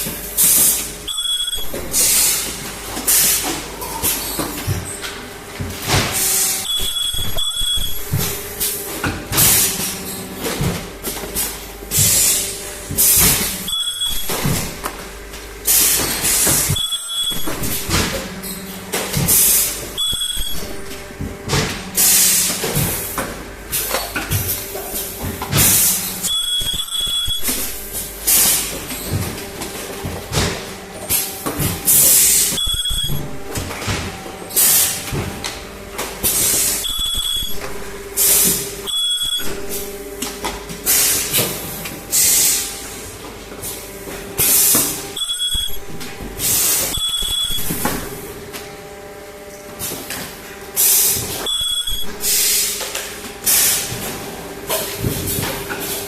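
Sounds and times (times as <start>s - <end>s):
low machine hum: 0.0s - 40.9s
machine clicks and clunks: 0.1s - 42.0s.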